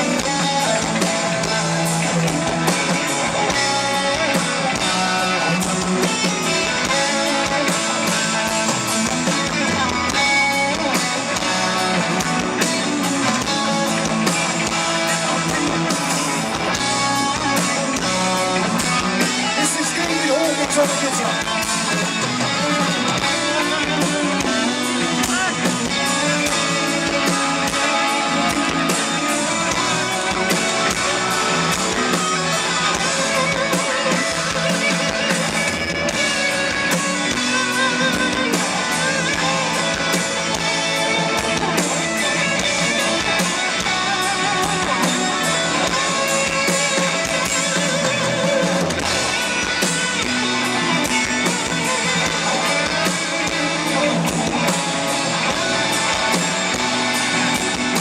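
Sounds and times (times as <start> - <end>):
hard rock band playing live: 0.0 - 58.0.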